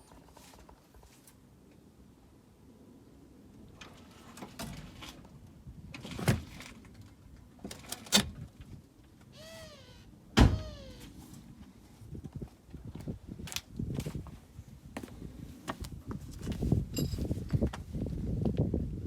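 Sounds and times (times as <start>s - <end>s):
short squeals: 9.3s - 11.2s.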